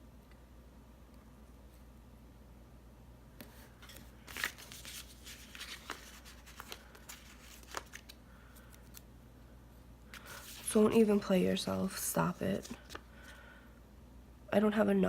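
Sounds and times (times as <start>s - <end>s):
paper rustling: 3.4s - 9.0s, 10.1s - 13.4s.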